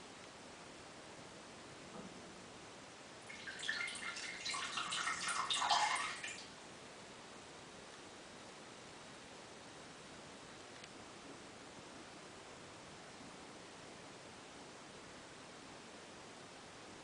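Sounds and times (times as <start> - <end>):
urine trickling into toilet water: 3.2 - 6.5.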